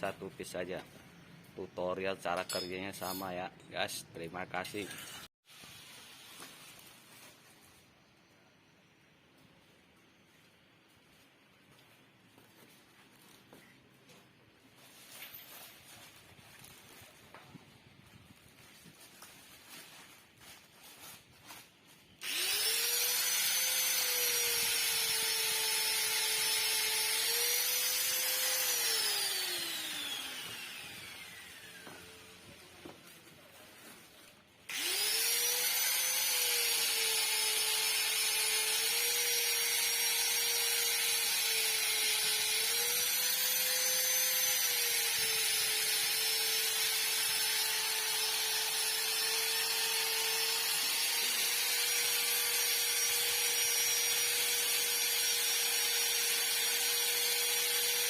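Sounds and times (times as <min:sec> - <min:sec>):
power tool whining: 0:22.2 - 0:33.1, 0:34.7 - 0:58.0.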